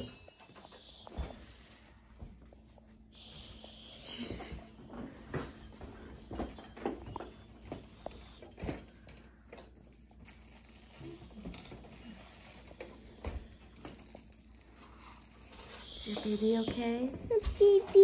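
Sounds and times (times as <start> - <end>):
soft taps and rustling: 16.1 - 18.0.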